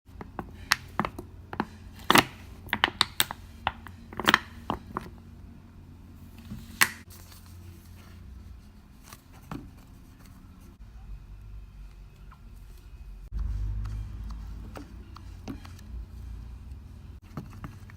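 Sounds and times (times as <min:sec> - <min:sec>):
small objects clicking and tapping: 0:00.1 - 0:05.1
low steady hum: 0:00.1 - 0:17.9.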